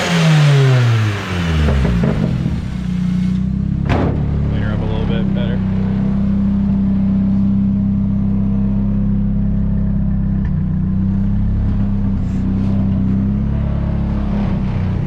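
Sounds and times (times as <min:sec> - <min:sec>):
car engine running with misfire: 0:00.0 - 0:05.6.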